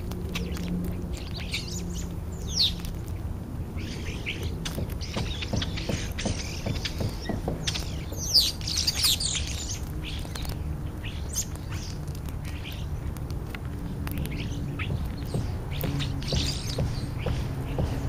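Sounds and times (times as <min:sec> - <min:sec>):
starlings chirping and squealing: 0:00.0 - 0:18.0
steady low hum: 0:00.0 - 0:18.0.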